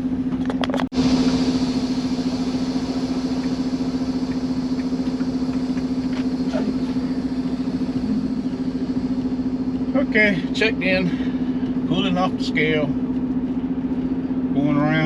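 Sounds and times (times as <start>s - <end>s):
diesel engine idling: 0.0s - 15.0s
air hiss: 1.0s - 11.6s.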